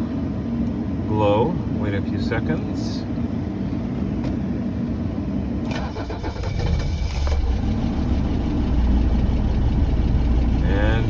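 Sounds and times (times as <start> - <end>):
diesel engine cranking and starting: 5.6 - 11.0.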